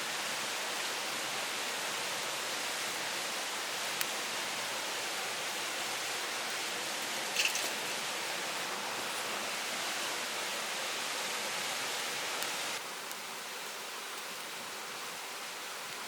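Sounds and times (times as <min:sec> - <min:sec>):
stream water rushing over rocks: 0:00.0 - 0:16.0.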